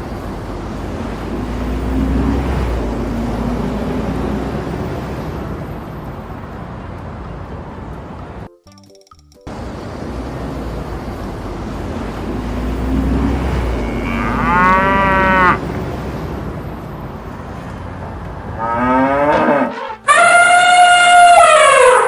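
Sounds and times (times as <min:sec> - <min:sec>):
cow mooing: 0:13.2 - 0:15.6, 0:18.6 - 0:22.0.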